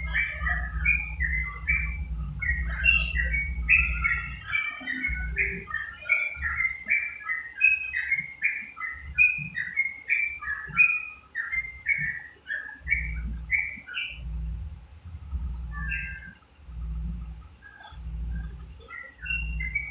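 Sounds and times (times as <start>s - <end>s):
low rumble: 0.0s - 6.7s, 12.9s - 19.9s
bird chirping: 0.0s - 19.9s.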